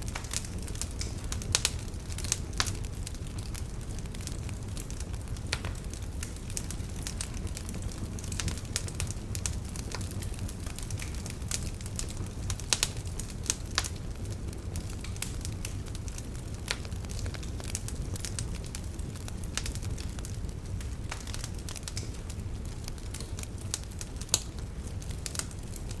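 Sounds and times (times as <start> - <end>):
fire crackling and popping: 0.0 - 26.0
low rumble of fire: 0.0 - 26.0.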